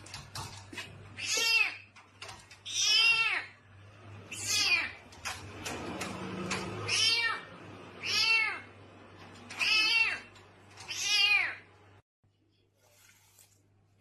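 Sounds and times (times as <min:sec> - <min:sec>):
cat meowing: 0:06.8 - 0:08.7, 0:09.5 - 0:11.7.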